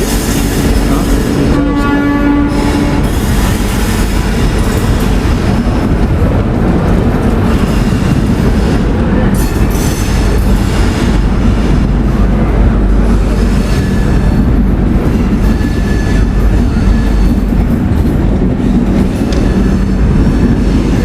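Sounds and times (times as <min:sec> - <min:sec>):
train wheels rumbling on track: 0:00.0 - 0:21.0
train horn: 0:00.9 - 0:03.2.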